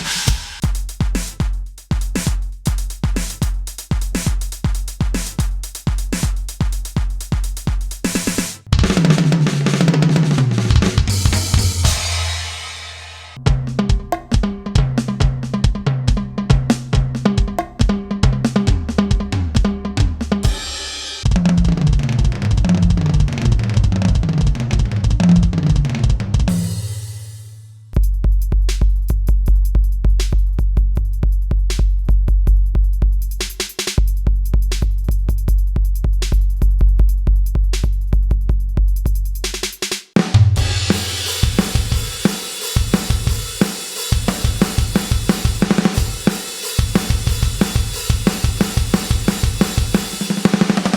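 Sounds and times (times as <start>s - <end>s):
pitched drum hits: 0.0s - 1.5s, 8.1s - 27.5s, 40.2s - 50.9s
drum groove of kick and snare: 0.0s - 50.9s
cymbal crash: 11.1s - 13.4s, 40.6s - 47.3s
cymbal crash ringing: 11.8s - 13.4s, 40.6s - 42.6s.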